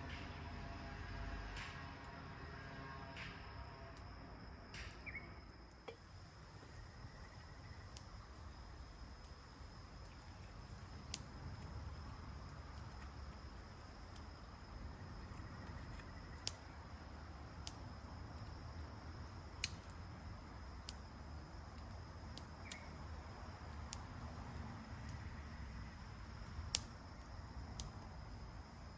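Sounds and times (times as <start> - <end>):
high insect trill: 0.0 - 28.9
sharp clicks: 19.4 - 20.0.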